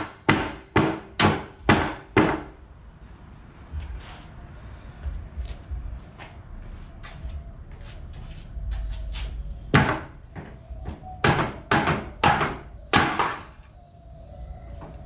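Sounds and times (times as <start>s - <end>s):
knocks on wooden pallet boards: 0.0s - 2.6s, 9.7s - 13.5s.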